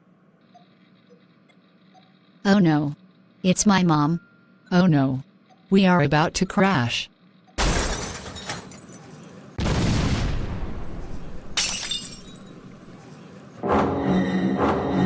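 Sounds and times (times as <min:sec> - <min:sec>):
glass shattering: 0:07.6 - 0:09.4, 0:11.6 - 0:12.7
cartoon car crash: 0:07.6 - 0:12.1
dramatic music: 0:13.6 - 0:15.0.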